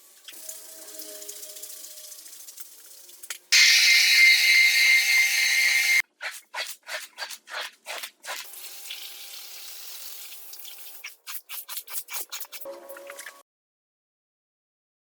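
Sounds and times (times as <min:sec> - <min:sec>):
loud hiss with whine: 0:03.6 - 0:06.0.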